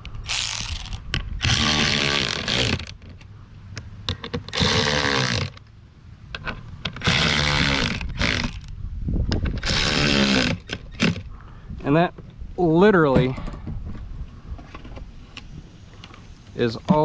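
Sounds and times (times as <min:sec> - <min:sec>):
power drill running in bursts: 0:00.3 - 0:02.9, 0:07.0 - 0:08.7.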